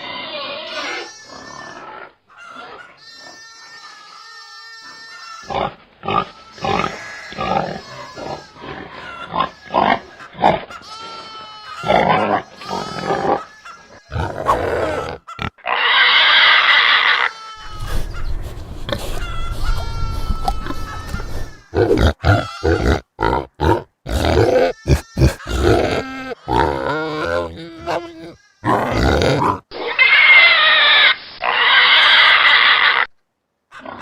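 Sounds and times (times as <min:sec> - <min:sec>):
pig squealing: 0:00.0 - 0:33.1, 0:33.7 - 0:34.0
pigs grunting: 0:05.4 - 0:30.0, 0:33.7 - 0:34.0.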